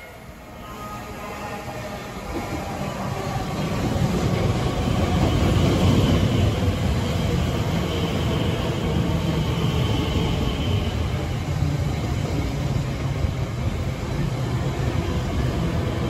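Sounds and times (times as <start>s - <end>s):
train wheels rumbling on rails: 1.7s - 16.0s.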